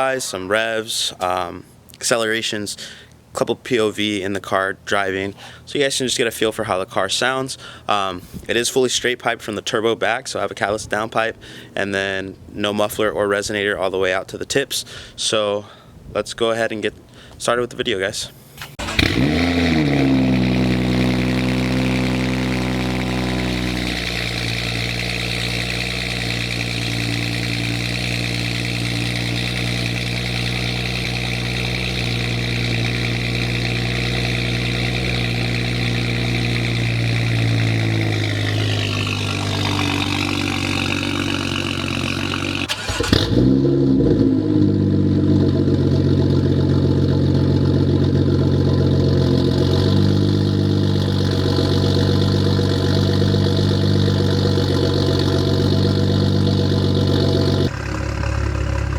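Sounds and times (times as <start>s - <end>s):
car engine idling: 18.8s - 58.9s.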